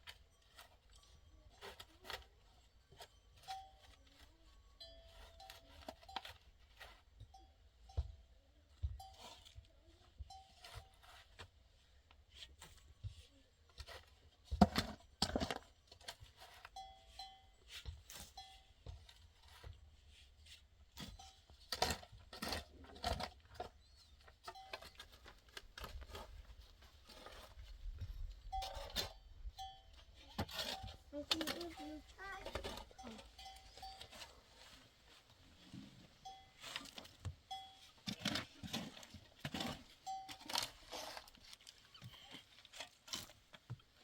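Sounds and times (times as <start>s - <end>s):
animal bells clinking: 0.0s - 8.4s, 9.0s - 9.6s, 10.3s - 11.2s, 15.7s - 19.6s, 21.0s - 25.5s, 28.0s - 35.0s, 36.1s - 42.8s.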